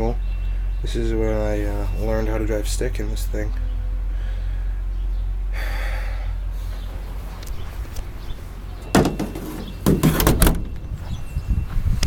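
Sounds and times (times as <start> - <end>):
low steady hum: 0.0 - 12.0
rattles: 8.6 - 10.8
metal truck door clunking: 8.7 - 10.9.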